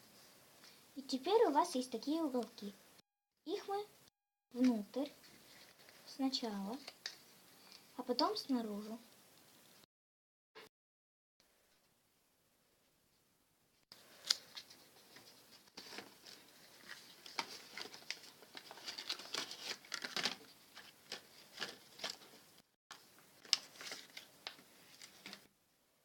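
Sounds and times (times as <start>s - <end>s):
paper rustling and crackling: 4.6s - 7.8s, 14.0s - 25.5s.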